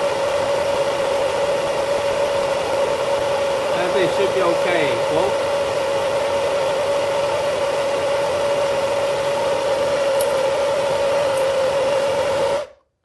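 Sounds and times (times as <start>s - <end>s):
hot-air blower whining: 0.0s - 12.9s.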